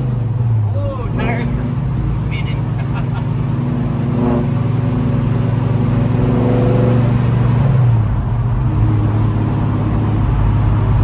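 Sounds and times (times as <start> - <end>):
car engine heard from cabin: 0.0 - 11.0.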